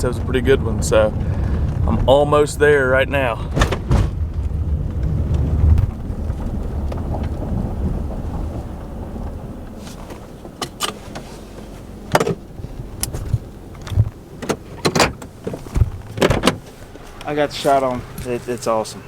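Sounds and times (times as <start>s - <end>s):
vehicle rumbling: 0.0s - 19.0s
sharp clicks and knocks: 3.5s - 11.3s, 12.1s - 17.3s.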